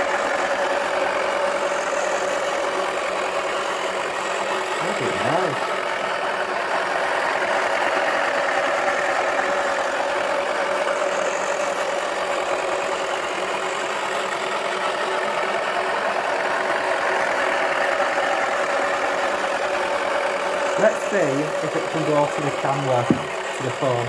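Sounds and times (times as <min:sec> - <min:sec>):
small electric motor whirring: 0:00.0 - 0:24.0.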